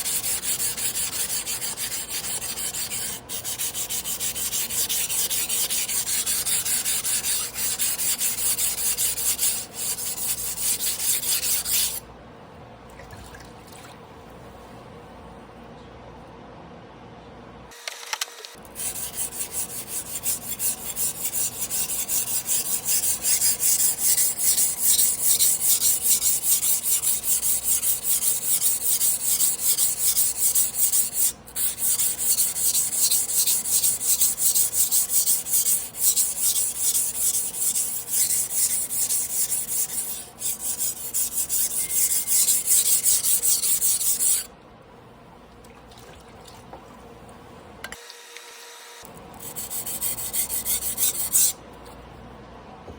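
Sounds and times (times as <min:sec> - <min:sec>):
knife grinding on whetstone: 0:00.0 - 0:12.0, 0:18.8 - 0:44.5, 0:49.4 - 0:51.6.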